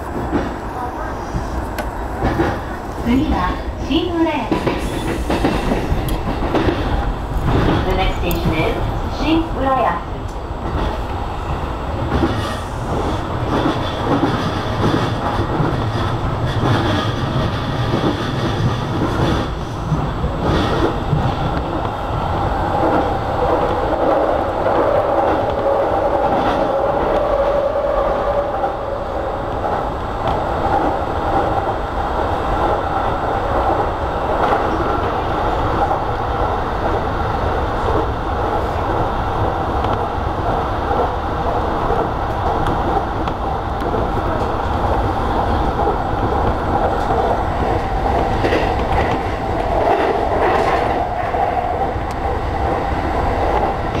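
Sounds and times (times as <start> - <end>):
train wheels rumbling on rail: 0.0 - 54.0
clacks over rail joints: 1.4 - 3.0, 4.4 - 8.6, 12.1 - 19.7.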